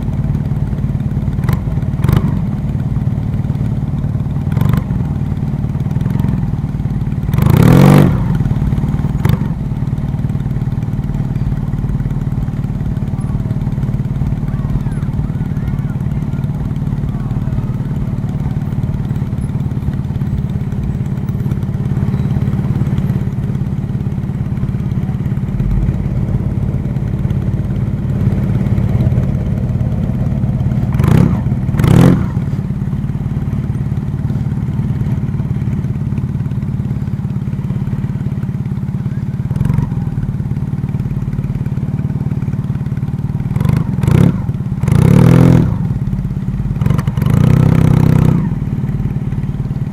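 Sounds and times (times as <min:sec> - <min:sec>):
loud engine bursts: 0:00.0 - 0:49.9
vehicle engine running: 0:00.0 - 0:49.9.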